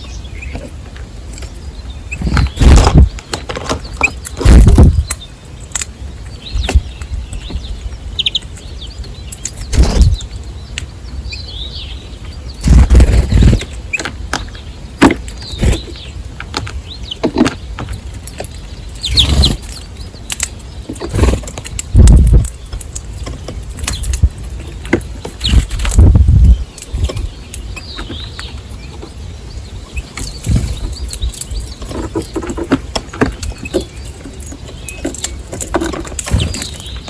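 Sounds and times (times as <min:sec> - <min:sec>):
small birds chirping: 0:00.0 - 0:37.0
thumps and rustles near microphone: 0:00.5 - 0:05.2, 0:09.6 - 0:10.2, 0:20.8 - 0:29.2.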